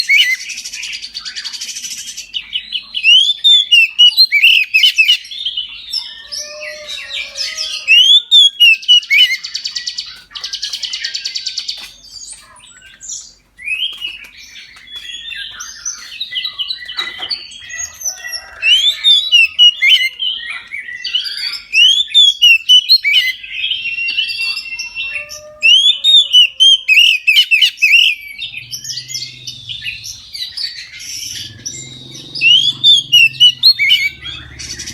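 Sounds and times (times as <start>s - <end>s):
bird singing whistled notes: 0.0s - 11.7s, 12.7s - 34.9s
buzzy rasping bird calls: 15.1s - 34.9s.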